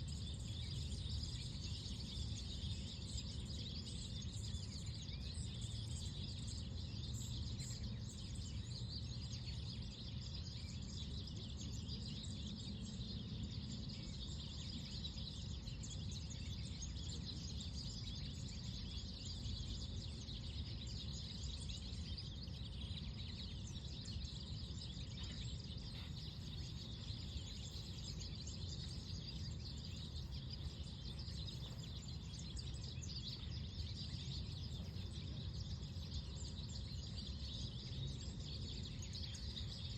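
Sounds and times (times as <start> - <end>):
songbirds chirping: 0.0 - 39.9
low background rumble: 12.2 - 39.3.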